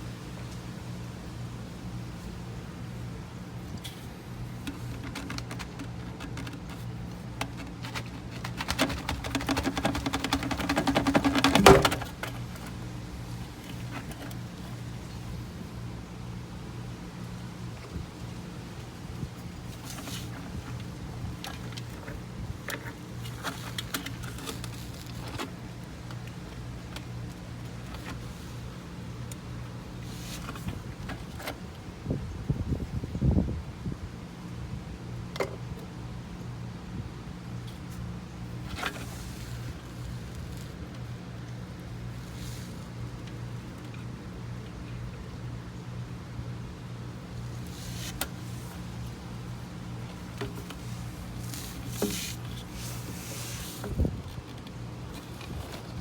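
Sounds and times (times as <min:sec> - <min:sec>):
rapid irregular clicking: 0:03.7 - 0:14.9.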